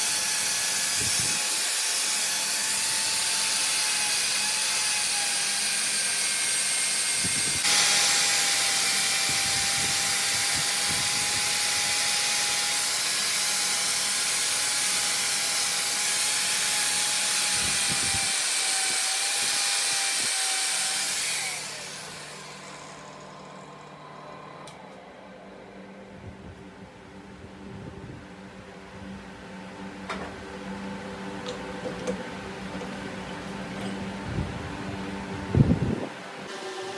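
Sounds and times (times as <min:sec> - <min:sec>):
power tool hissing and whining: 0:00.0 - 0:25.0, 0:35.6 - 0:36.9.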